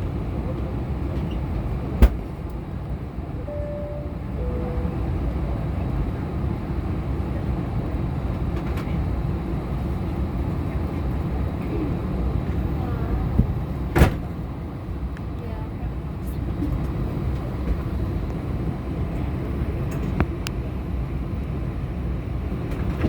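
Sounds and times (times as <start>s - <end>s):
aircraft cabin rumble: 0.0s - 23.0s
two-note falling chime: 3.4s - 5.6s.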